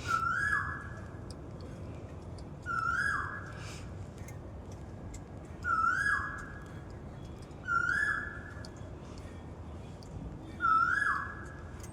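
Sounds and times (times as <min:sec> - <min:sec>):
bird whistled call: 0:00.0 - 0:01.0, 0:02.6 - 0:03.6, 0:05.6 - 0:06.5, 0:07.6 - 0:08.5, 0:10.6 - 0:11.6.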